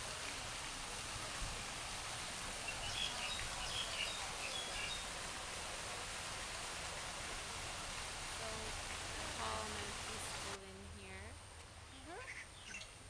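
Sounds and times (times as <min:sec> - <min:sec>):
fountain water spraying: 0:00.0 - 0:13.0
small birds chirping: 0:02.2 - 0:05.2, 0:11.8 - 0:13.0.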